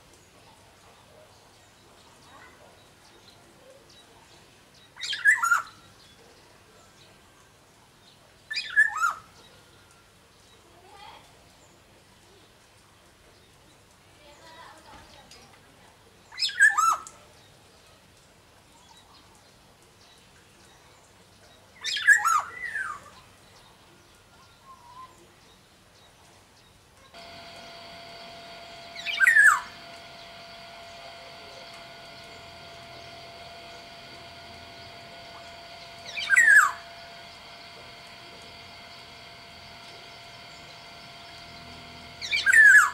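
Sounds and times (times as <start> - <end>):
bird calling with gliding notes: 27.2 - 42.9
steady hum: 27.2 - 42.9.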